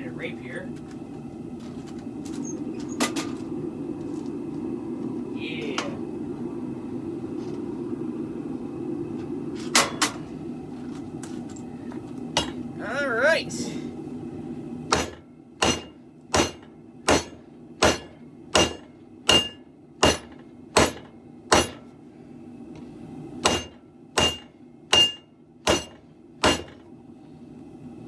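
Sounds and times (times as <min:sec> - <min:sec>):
hammer striking steel blade: 0:12.4 - 0:12.6, 0:14.9 - 0:21.8, 0:23.4 - 0:26.8.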